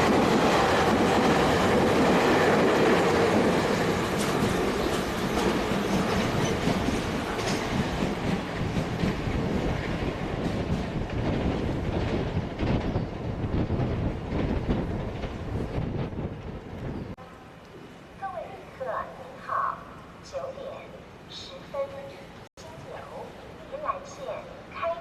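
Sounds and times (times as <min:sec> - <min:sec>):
train wheels clicking over rail joints: 0:00.0 - 0:17.1.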